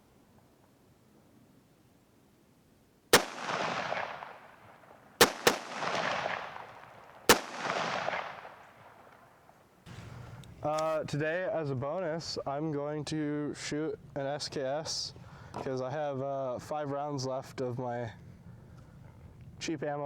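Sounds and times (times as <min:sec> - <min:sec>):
rifle shots echoing: 0:03.1 - 0:09.7.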